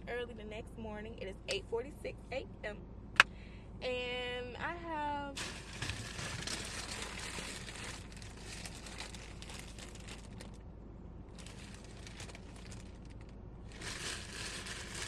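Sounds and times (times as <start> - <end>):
plastic packaging crinkling: 5.4 - 10.6, 11.3 - 15.0.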